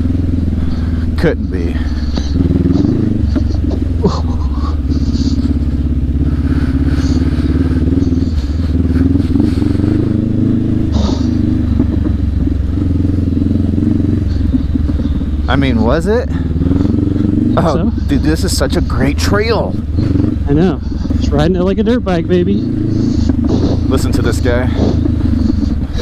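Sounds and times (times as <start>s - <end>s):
motorcycle engine running: 0.0s - 26.0s
motorcycle knocks and rattles: 10.9s - 15.8s, 24.7s - 26.0s.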